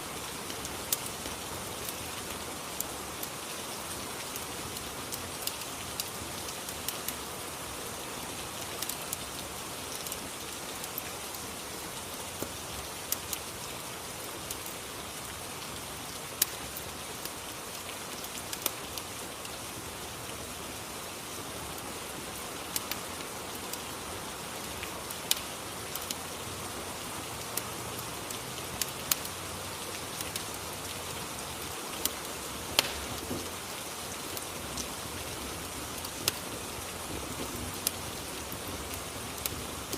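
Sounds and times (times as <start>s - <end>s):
rain hissing: 0.0s - 39.9s
fire pops and crackles: 0.3s - 7.3s, 8.1s - 11.4s, 14.3s - 15.2s, 16.2s - 19.5s, 22.7s - 23.1s, 24.7s - 26.2s, 27.9s - 30.6s, 31.6s - 39.9s.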